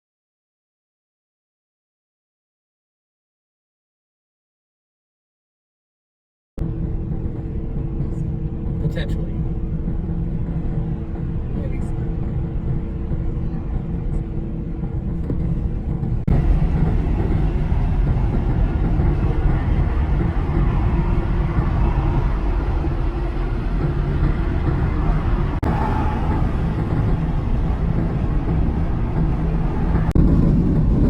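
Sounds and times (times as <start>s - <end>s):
wind and road noise: 6.6s - 31.0s.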